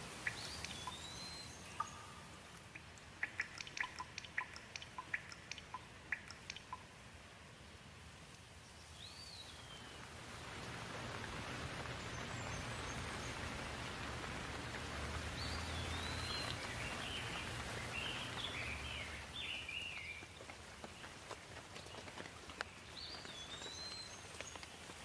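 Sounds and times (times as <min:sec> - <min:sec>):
sharp drips: 0:00.0 - 0:07.0, 0:10.0 - 0:25.0
steady rain falling: 0:00.0 - 0:25.0
bird chirping and trilling: 0:00.2 - 0:06.8, 0:15.4 - 0:20.2.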